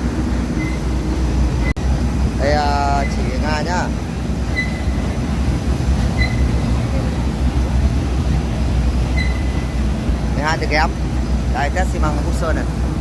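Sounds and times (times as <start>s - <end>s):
short high beeps: 0.6s - 0.9s, 4.5s - 5.1s, 6.2s - 6.7s, 9.1s - 9.8s.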